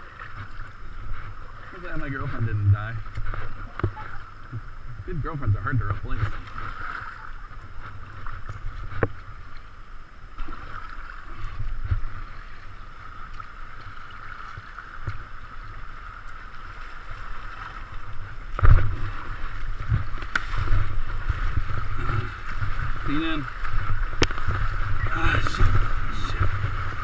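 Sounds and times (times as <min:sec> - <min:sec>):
river water rushing: 0:06.2 - 0:27.0.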